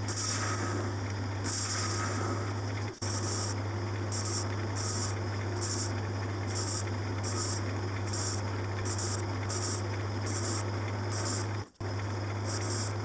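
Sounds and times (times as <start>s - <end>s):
workshop machine humming: 0.0s - 13.0s.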